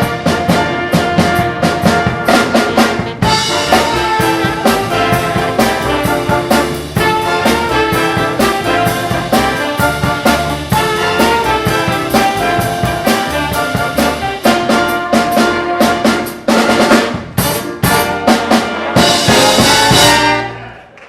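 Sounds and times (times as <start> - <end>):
big band playing swing: 0.0 - 21.0.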